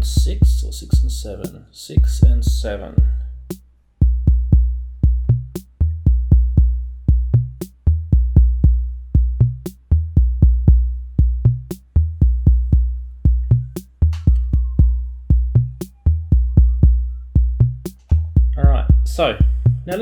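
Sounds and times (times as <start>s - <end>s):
kick drum: 0.0s - 1.2s, 2.0s - 3.3s, 4.0s - 20.0s.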